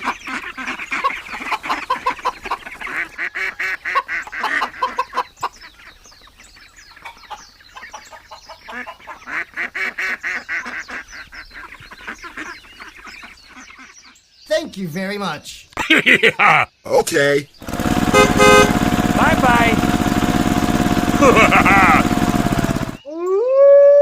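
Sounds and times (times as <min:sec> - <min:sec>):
ducks and geese quacking and honking: 0:00.0 - 0:05.9, 0:06.5 - 0:14.2.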